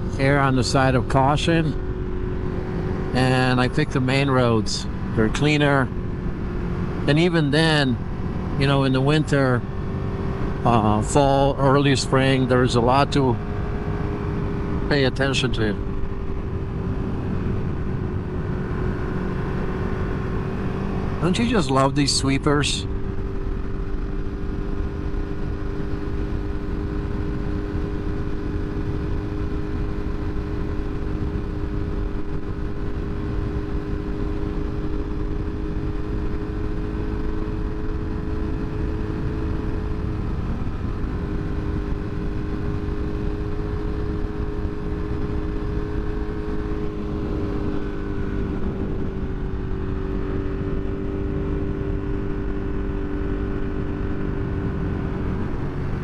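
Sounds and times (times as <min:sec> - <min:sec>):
motorcycle engine cruising: 0:00.0 - 0:56.0
wind noise: 0:13.3 - 0:21.2, 0:22.8 - 0:56.0.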